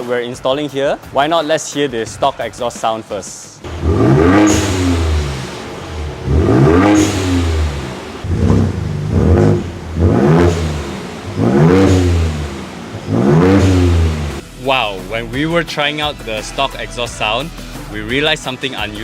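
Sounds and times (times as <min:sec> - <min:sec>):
car engine revving: 0:03.6 - 0:14.4.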